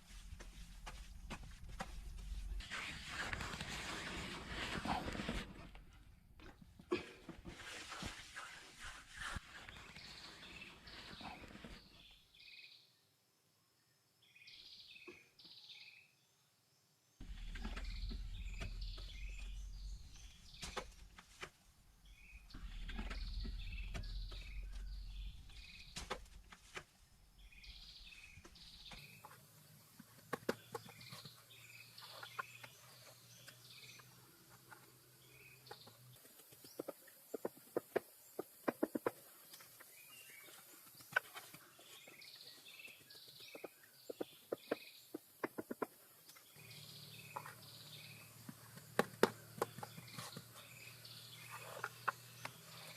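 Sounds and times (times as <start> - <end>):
low rumble: 17.2 - 20.6
birds chirping: 17.3 - 21.1, 22.0 - 26.2, 27.3 - 52.9.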